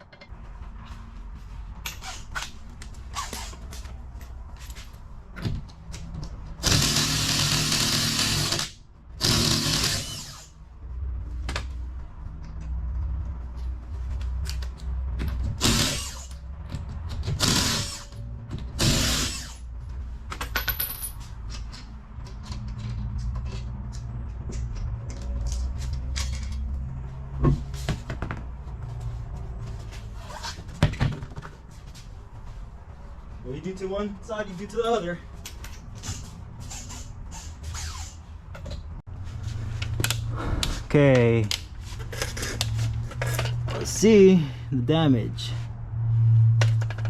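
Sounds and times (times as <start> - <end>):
impact wrench running: 6.6 - 10.5, 15.6 - 16.4, 17.4 - 18.2, 18.8 - 19.6.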